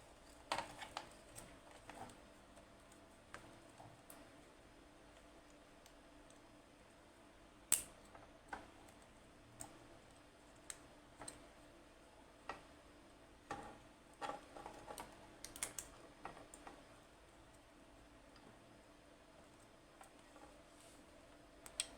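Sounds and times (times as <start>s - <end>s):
faint steady hum: 0.0s - 21.9s
light clicks and taps: 7.7s - 11.5s, 21.6s - 21.9s.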